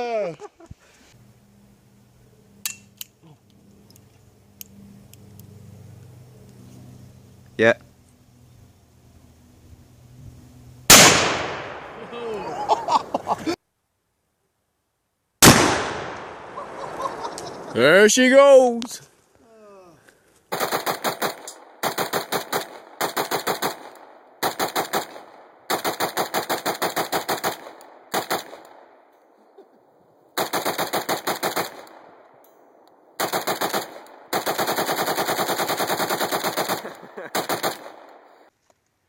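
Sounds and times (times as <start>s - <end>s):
gunfire bursts: 10.9s - 12.0s, 15.4s - 16.6s, 20.5s - 29.0s, 30.4s - 32.3s, 33.2s - 38.5s.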